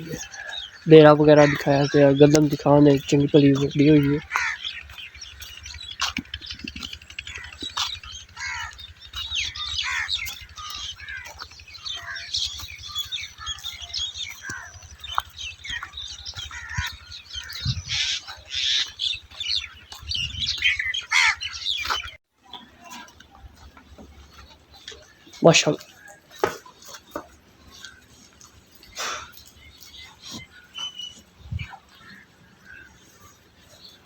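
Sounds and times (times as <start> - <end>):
small birds chirping: 0.0 - 34.0
steady low rumble: 3.1 - 21.0.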